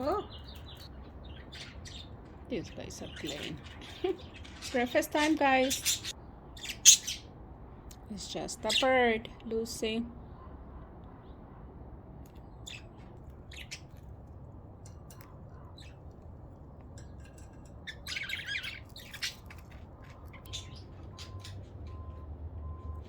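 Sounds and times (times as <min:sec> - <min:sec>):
budgerigars chirping: 0:00.0 - 0:07.3, 0:12.5 - 0:14.1, 0:17.8 - 0:22.1.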